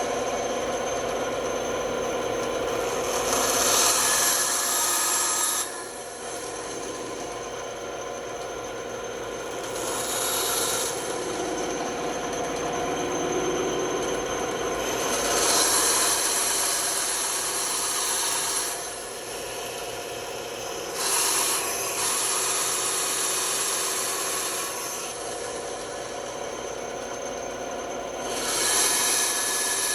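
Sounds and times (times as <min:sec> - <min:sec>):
band saw motor hum: 0:00.0 - 0:29.9
saw blade rasping through wood: 0:02.8 - 0:07.4, 0:09.6 - 0:11.8, 0:14.8 - 0:19.8, 0:20.9 - 0:26.0, 0:28.3 - 0:29.9.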